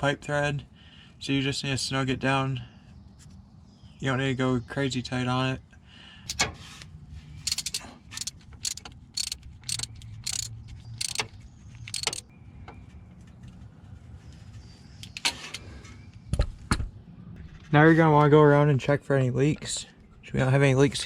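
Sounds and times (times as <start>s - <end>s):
metal hand tools clicking: 7.4s - 12.2s.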